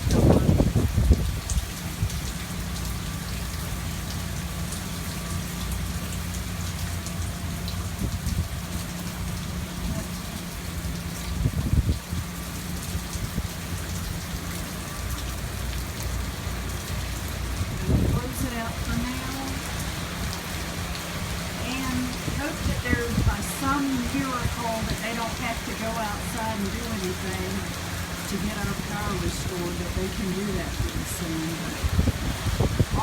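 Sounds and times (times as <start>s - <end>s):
wind gusts on microphone: 0.0s - 2.3s, 11.2s - 13.6s, 17.4s - 33.0s
heavy rain falling: 0.0s - 33.0s
water dripping and splashing: 0.0s - 33.0s.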